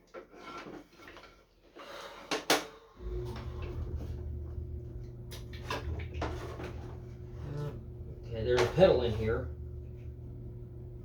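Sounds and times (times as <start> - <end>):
steady low hum: 3.0 - 11.0.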